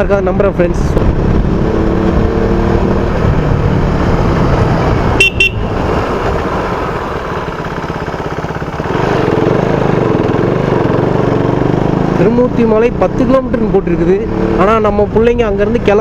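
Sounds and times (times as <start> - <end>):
motorcycle engine running: 1.0 - 16.0
horn toots: 5.1 - 5.9.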